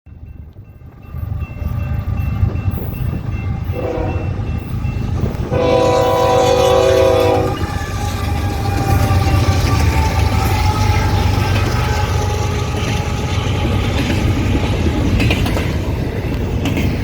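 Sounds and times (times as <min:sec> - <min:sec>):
low rumble of train: 0:00.1 - 0:17.0
locomotive horn blasts: 0:03.7 - 0:04.4, 0:05.4 - 0:08.1.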